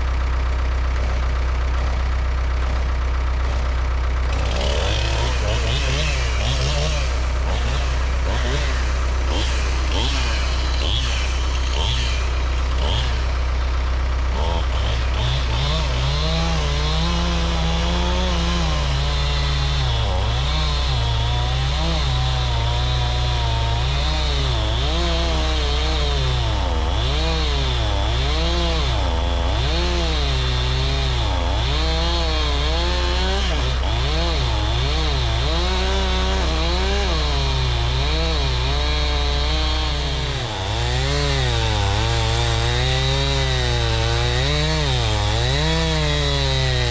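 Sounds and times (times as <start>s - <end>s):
steady low drone: 0.0s - 29.4s
engine running: 0.0s - 46.9s.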